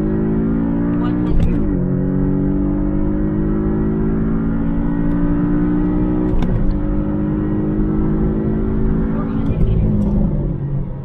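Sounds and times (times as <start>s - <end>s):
car engine accelerating: 0.0s - 11.0s
gear upshift: 4.5s - 10.6s.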